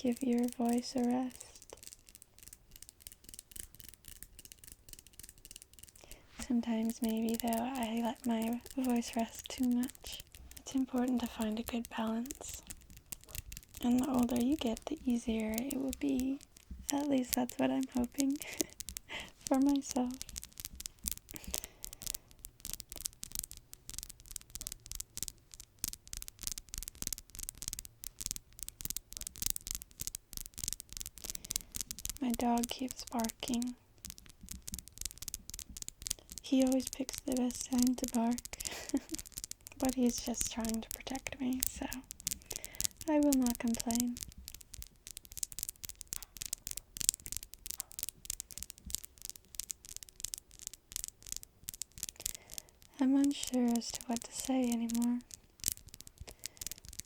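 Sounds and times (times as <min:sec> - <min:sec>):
fingernails tapping and scratching: 0:00.0 - 0:57.0
faint low hum: 0:06.0 - 0:20.3.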